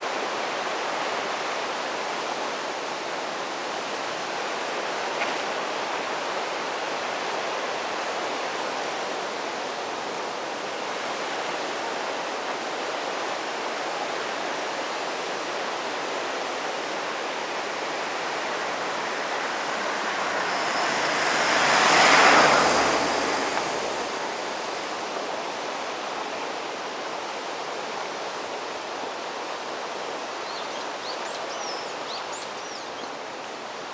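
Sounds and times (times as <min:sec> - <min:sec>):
steady rushing outdoor noise: 0:13.0 - 0:30.2
vehicle passing: 0:16.9 - 0:25.9.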